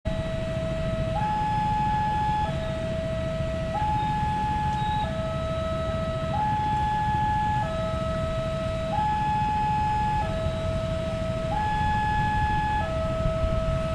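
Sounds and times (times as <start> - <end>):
two-tone crossing alarm: 0.1 - 13.9
low rumble: 10.3 - 13.9.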